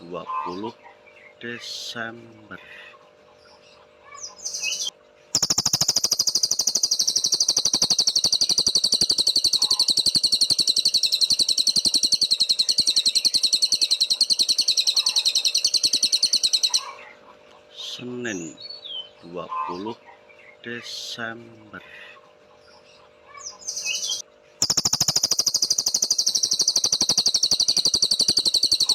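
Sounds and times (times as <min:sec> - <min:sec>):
songbird fast high-pitched trill: 0:04.2 - 0:17.0, 0:23.4 - 0:28.9.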